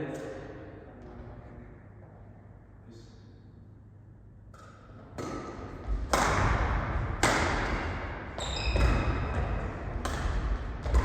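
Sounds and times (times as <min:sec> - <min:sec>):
racket hitting shuttlecock: 0:04.5 - 0:11.0
shoes squeaking on court floor: 0:08.4 - 0:09.8.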